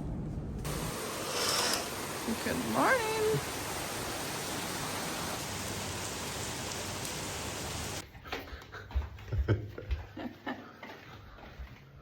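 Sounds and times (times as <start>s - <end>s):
rushing hiss: 0.7s - 8.0s.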